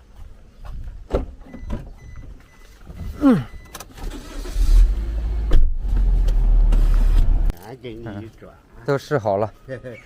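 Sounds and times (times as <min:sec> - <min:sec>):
car engine starting and rumbling: 0:02.9 - 0:07.5.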